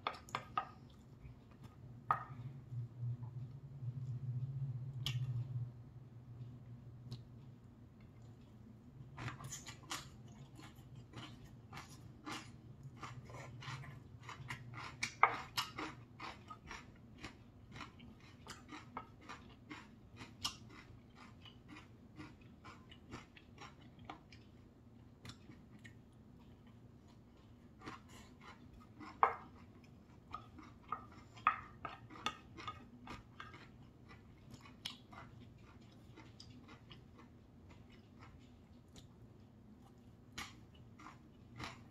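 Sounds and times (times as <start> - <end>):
wet mouth clicks while chewing: 30.3 - 39.2.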